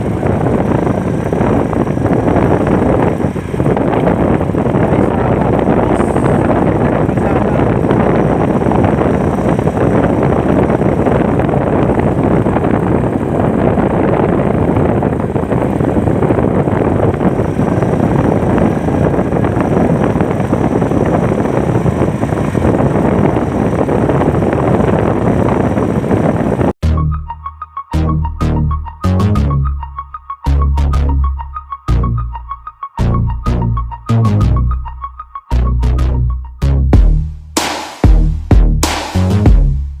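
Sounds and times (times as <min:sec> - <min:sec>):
wind buffeting microphone: 0:00.0 - 0:26.8.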